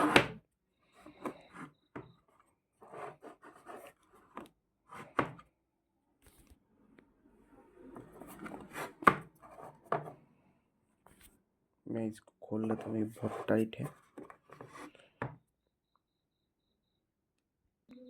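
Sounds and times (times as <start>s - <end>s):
scrapes and rubs on a box: 0.0s - 0.2s, 2.8s - 5.2s, 7.9s - 9.9s, 12.7s - 15.0s.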